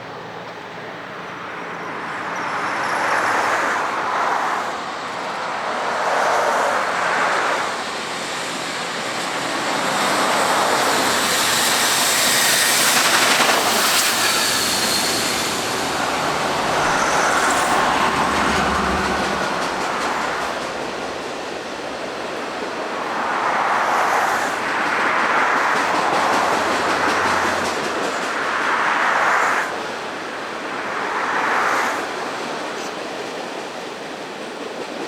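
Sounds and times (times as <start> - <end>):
steam train rolling past: 0.0 - 35.0.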